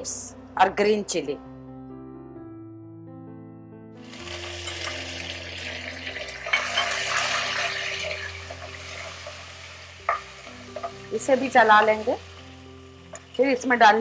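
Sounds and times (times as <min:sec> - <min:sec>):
leaves and chillies sizzling in oil: 0:04.0 - 0:14.0
metal spatula scraping a pot: 0:06.2 - 0:12.1.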